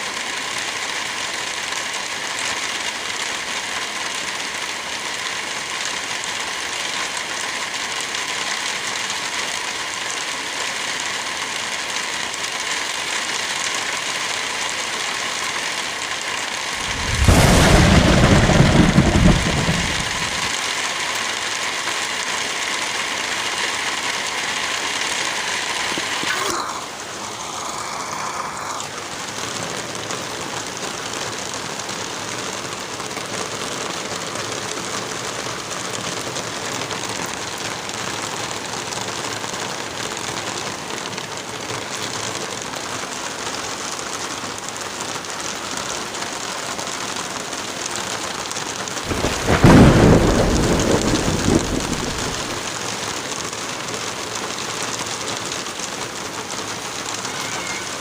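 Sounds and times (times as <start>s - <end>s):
steady rain: 0.0s - 58.0s
thunder rumble: 16.8s - 20.5s, 49.1s - 52.7s.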